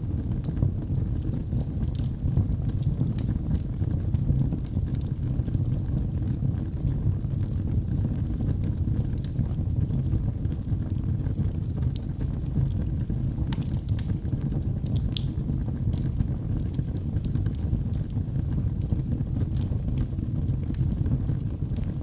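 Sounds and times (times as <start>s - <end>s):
fire crackling and popping: 0.0s - 22.0s
fire rumbling: 0.0s - 22.0s.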